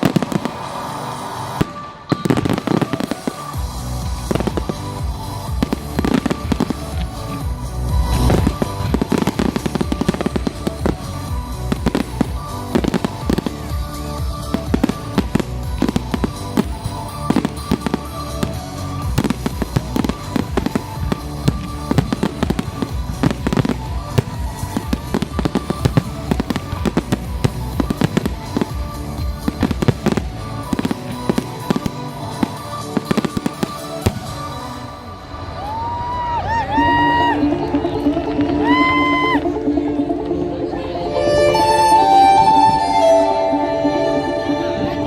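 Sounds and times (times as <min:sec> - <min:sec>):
fireworks bangs and crackles: 0:00.0 - 0:35.9
music: 0:00.0 - 0:45.0.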